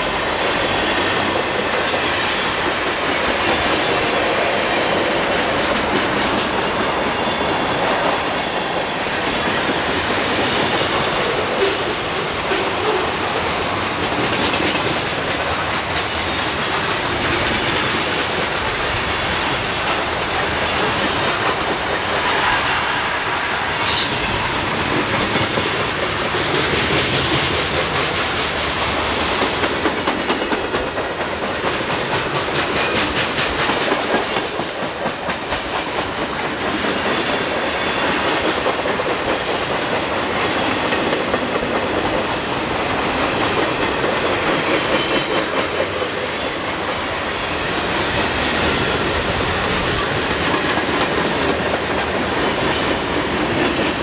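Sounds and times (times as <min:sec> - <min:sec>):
freight train wheels rumbling: 0:00.0 - 0:54.0
wheels clacking over rail joints: 0:23.8 - 0:54.0.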